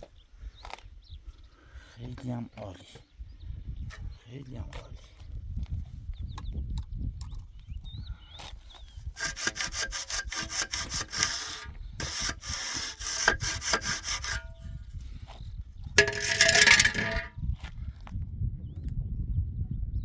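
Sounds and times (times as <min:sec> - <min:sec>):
hand saw cutting: 0:09.2 - 0:14.7, 0:16.0 - 0:17.3
loud scraping burst: 0:09.2 - 0:14.7, 0:16.0 - 0:17.3.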